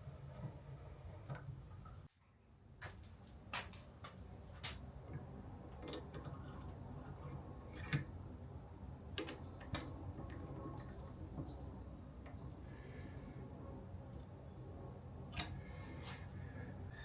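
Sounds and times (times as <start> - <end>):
metal tools clinking on worktable: 7.2 - 8.2.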